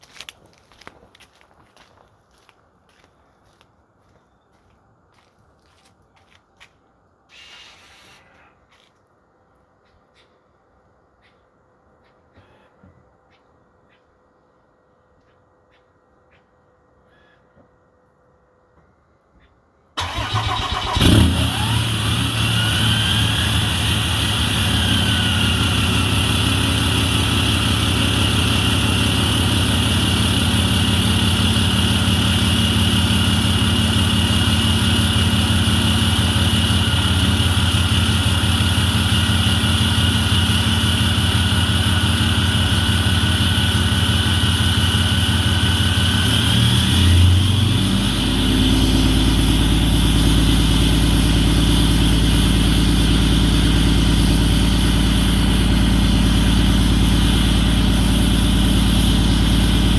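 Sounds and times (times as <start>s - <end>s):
diesel engine idling loudly: 20.0s - 59.9s.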